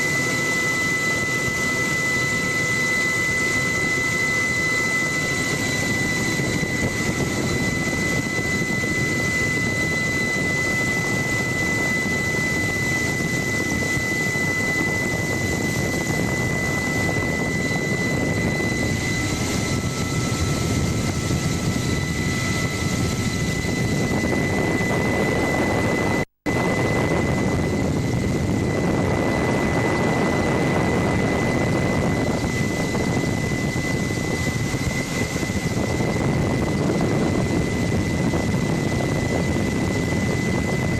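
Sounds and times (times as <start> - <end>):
helicopter rotor and engine: 0.0 - 40.9
high-pitched whine: 0.0 - 40.9.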